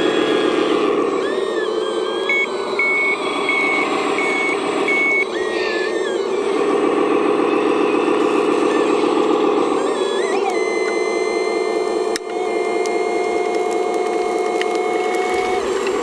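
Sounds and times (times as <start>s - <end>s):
model engine and motors drone: 0.0s - 16.0s
reversing beeper: 2.2s - 5.9s.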